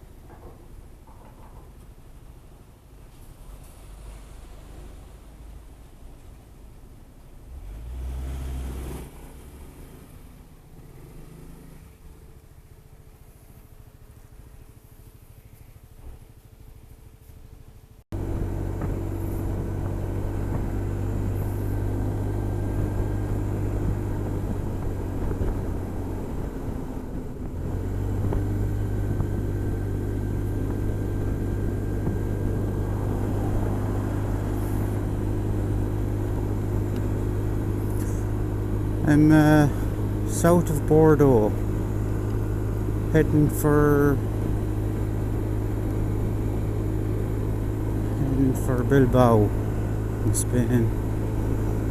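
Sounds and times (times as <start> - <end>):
wind and road noise: 0.0 - 51.9
scooter engine running: 10.6 - 51.9.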